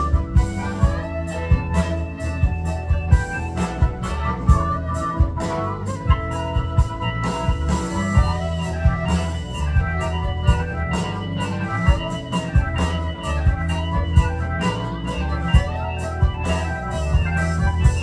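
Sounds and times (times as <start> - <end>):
live band sustained chords: 0.0 - 18.0
steady drum beat: 0.0 - 18.0.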